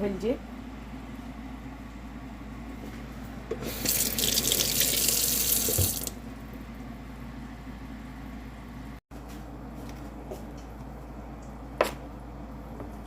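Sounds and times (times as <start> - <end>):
tap running into sink: 3.6 - 6.2.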